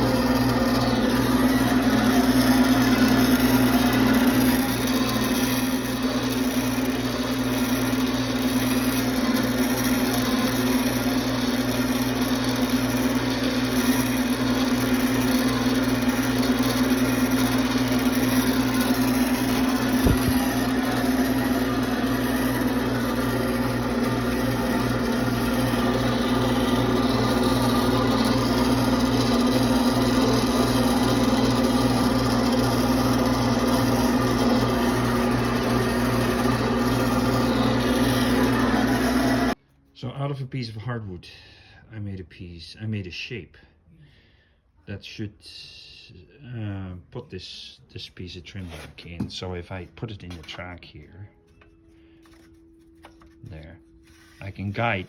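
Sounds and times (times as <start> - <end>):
electric power tool shaping wood: 0.0 - 39.6, 54.2 - 55.0.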